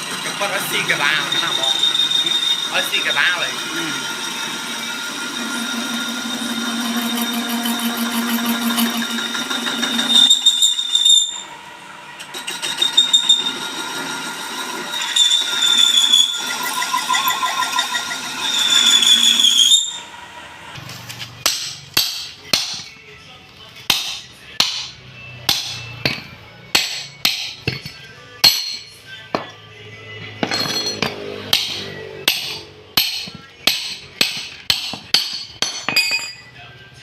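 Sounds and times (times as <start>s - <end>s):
lathe cutting tool squealing: 0.0s - 20.8s
sharp metal knocks: 21.4s - 22.9s, 23.9s - 24.9s, 25.5s - 29.5s, 30.4s - 36.4s.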